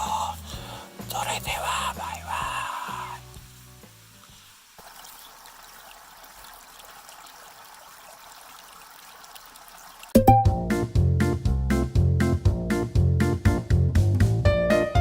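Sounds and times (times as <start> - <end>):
plucked background music: 10.2 - 15.0.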